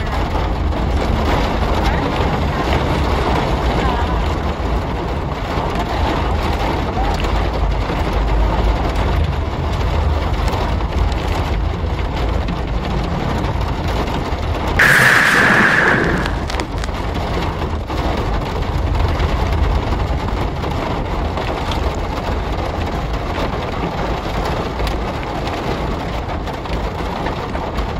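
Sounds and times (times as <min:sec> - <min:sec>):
rain on car: 0:00.0 - 0:27.9
high hiss: 0:14.8 - 0:16.8
low rumble: 0:14.8 - 0:17.4.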